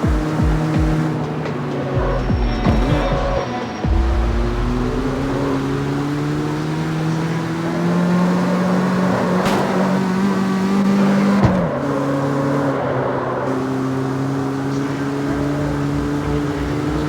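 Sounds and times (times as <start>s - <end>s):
car engine pulling under load: 0.0s - 17.0s.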